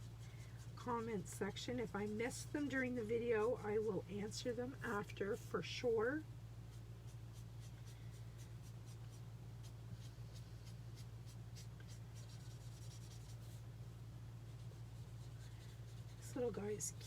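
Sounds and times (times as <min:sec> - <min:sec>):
marker stroking on paper: 0:00.0 - 0:05.1, 0:06.7 - 0:13.6, 0:14.5 - 0:17.0.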